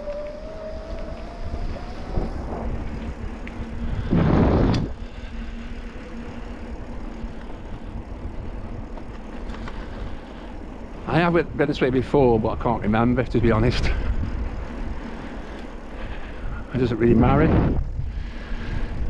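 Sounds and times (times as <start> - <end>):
wind noise: 0.0 - 10.2, 11.0 - 19.0
road rumble: 0.0 - 19.0
loud rush of noise: 1.3 - 5.9.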